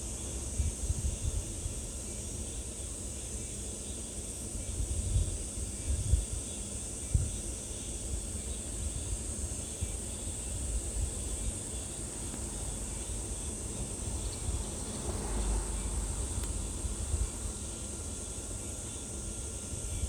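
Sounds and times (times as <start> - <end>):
insects buzzing: 0.0 - 20.0
low uneven rumble: 10.7 - 19.0.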